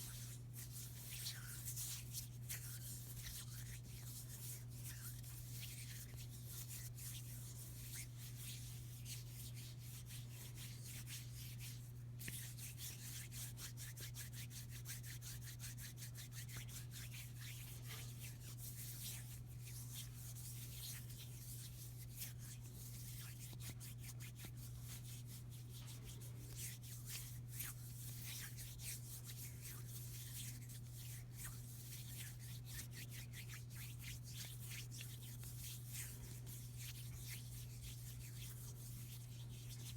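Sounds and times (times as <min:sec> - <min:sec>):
hands rubbing together: 0:16.0 - 0:39.9.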